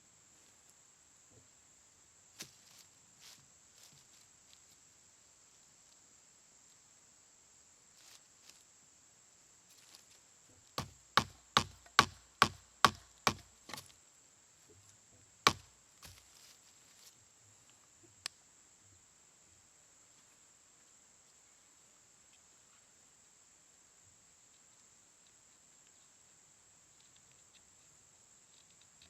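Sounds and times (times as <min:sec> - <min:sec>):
sharp wooden strikes: 0:10.8 - 0:13.8, 0:15.5 - 0:15.7.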